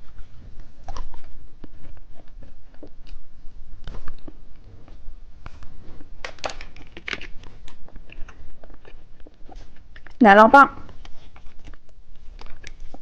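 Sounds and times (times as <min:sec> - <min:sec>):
plastic packaging crinkling: 0:05.7 - 0:10.2.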